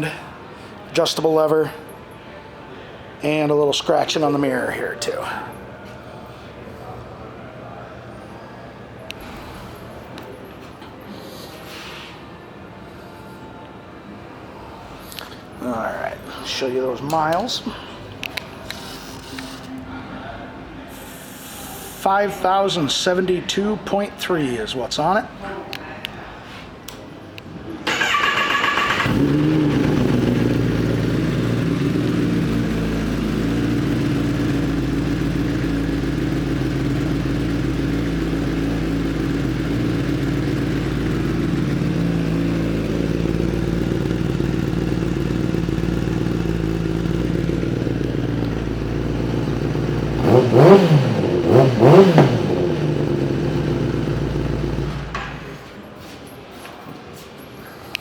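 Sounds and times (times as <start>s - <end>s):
electric starter cranking: 27.9s - 30.7s
engine revving in blips: 28.0s - 44.8s, 45.6s - 55.2s
motorcycle engine idling: 28.0s - 55.5s.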